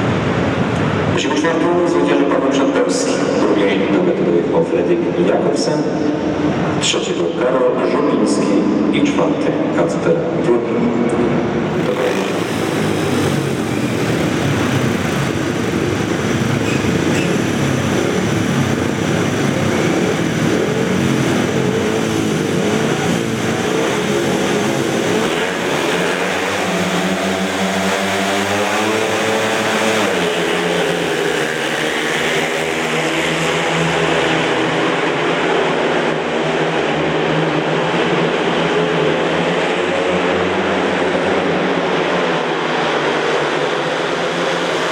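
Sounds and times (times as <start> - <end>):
motorcycles racing: 11.1 - 44.9.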